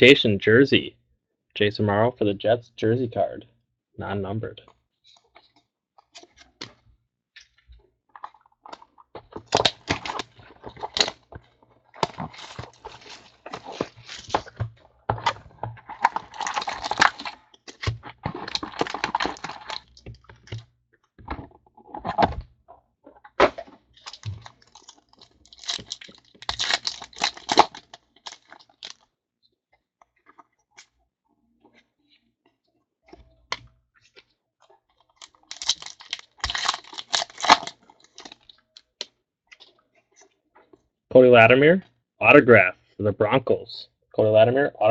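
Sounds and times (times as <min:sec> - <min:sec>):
wrappers crinkling and rustling: 0:08.3 - 0:14.8, 0:15.5 - 0:20.6, 0:23.9 - 0:29.0, 0:35.0 - 0:38.9.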